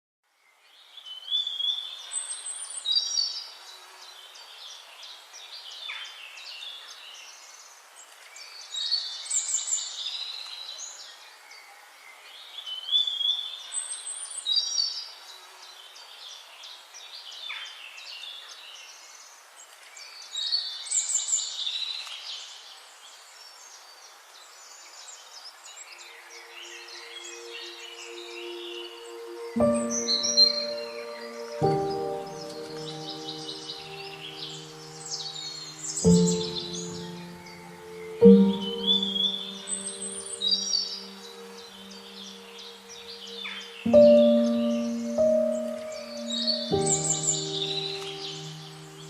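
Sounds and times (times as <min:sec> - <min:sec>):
steady background hiss: 0:00.4 - 0:49.0.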